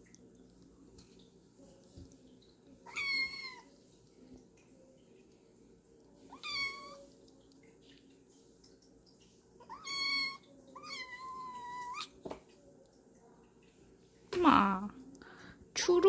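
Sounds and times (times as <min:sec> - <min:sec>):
faint low hum: 0:00.0 - 0:16.0
cat meowing: 0:02.9 - 0:03.7, 0:06.3 - 0:07.0, 0:09.7 - 0:12.1.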